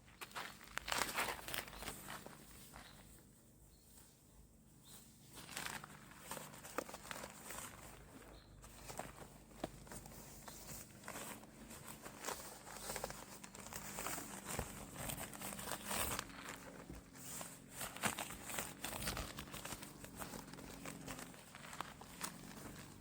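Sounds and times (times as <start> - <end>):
synthetic fabric crumpling: 0.1 - 3.0, 5.3 - 23.0.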